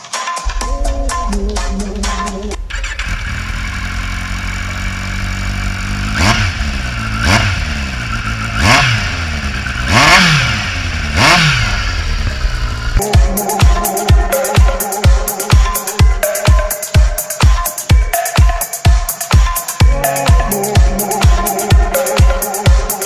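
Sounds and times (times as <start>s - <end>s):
motorcycle engine idling: 0.4s - 17.1s
engine revving: 0.5s - 13.0s.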